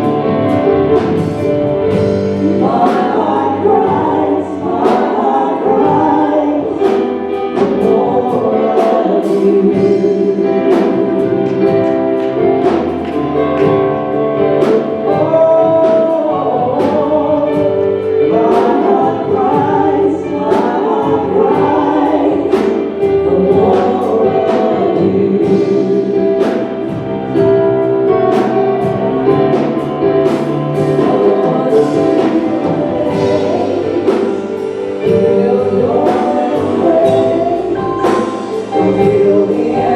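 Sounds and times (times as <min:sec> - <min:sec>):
band accompaniment: 0:00.0 - 0:39.9
group singing gospel song: 0:00.0 - 0:39.9
steady drum beat: 0:00.0 - 0:39.9.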